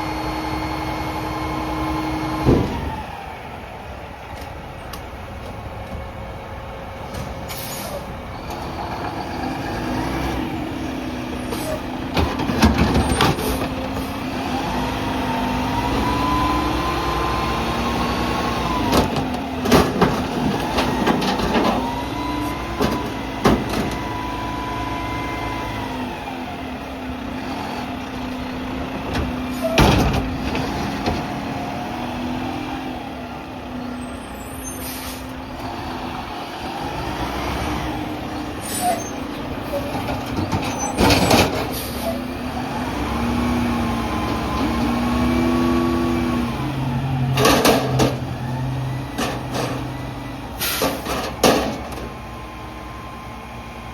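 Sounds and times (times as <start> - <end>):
garbage truck engine revving: 0.0 - 3.9, 7.4 - 53.9
dumpster bangs and clanks: 2.3 - 3.1, 11.6 - 15.1, 17.9 - 24.4, 29.0 - 32.1, 38.9 - 42.3, 47.1 - 52.3.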